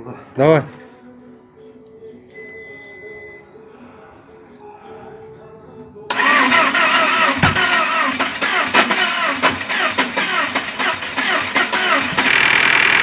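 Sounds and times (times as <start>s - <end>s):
car engine cranking and starting: 6.1s - 13.0s.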